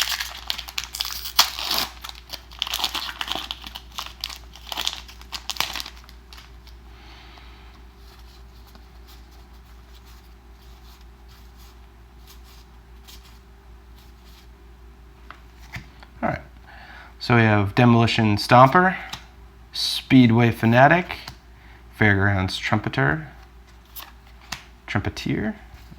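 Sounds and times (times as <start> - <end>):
foil wrapper crinkling and tearing: 0.0 - 6.8
faint handling rustles: 3.3 - 14.6, 23.3 - 24.8.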